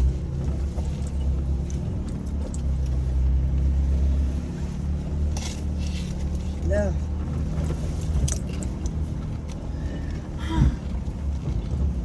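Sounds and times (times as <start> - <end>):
car engine running at low revs: 0.0 - 12.0
light rattles and clinks: 7.6 - 9.0.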